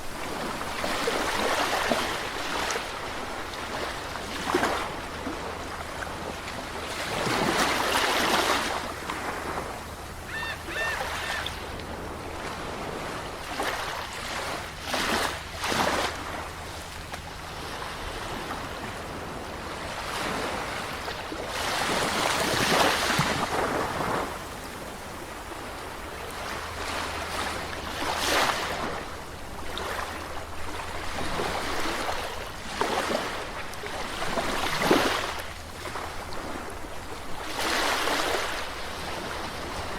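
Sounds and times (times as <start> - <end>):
sea waves breaking on shore: 0.0 - 39.9
faint high call: 10.2 - 11.7.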